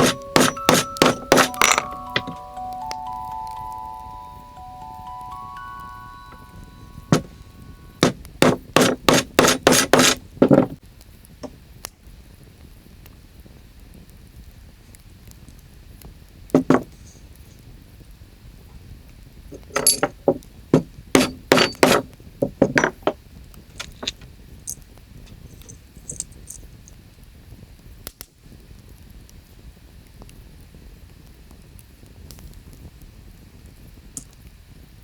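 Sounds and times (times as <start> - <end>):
small hard objects clinking: 0.0 - 3.0, 19.6 - 20.4, 21.2 - 24.8, 25.6 - 26.6
faint steady background: 0.0 - 10.8.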